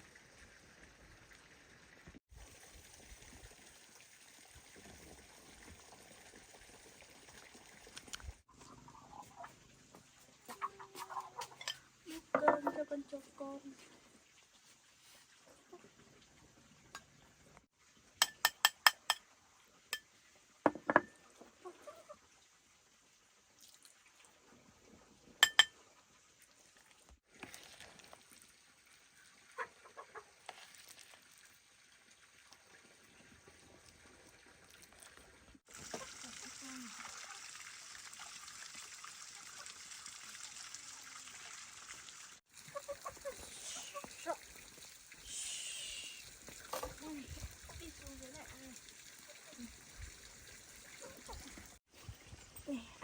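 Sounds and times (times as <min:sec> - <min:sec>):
utensil knocking on metal pot: 0:20.7 - 0:21.1
water running: 0:27.4 - 0:53.0.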